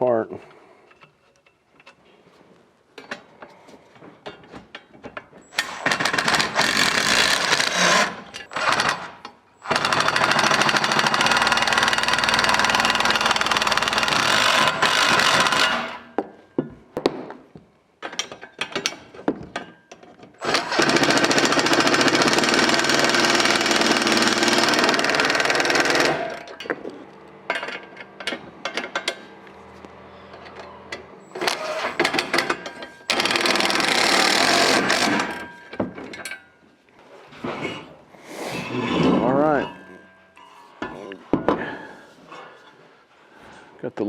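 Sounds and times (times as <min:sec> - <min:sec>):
parts clicking and clattering: 0:02.9 - 0:36.7
power driver running screws: 0:05.5 - 0:16.1, 0:20.4 - 0:26.6, 0:31.3 - 0:35.5.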